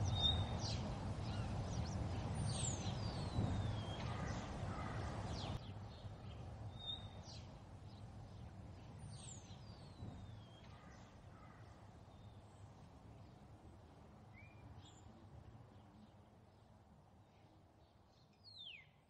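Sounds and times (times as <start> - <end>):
bird chirps: 0.0 - 8.0, 18.2 - 19.0.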